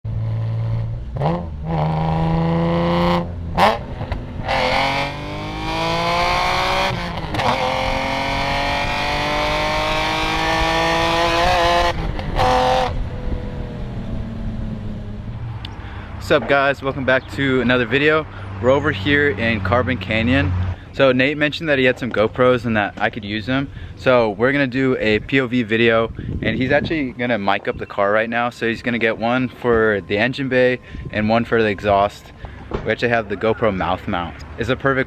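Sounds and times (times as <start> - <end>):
car engine accelerating hard: 0.1 - 16.0.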